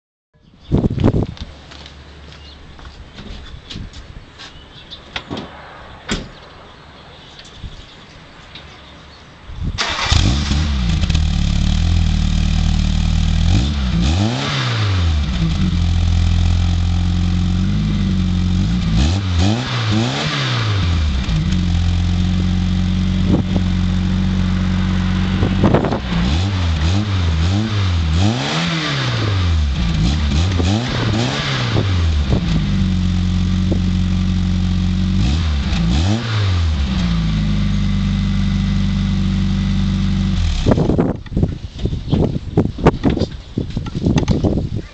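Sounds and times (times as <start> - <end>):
car engine starting and revving: 9.8 - 41.1.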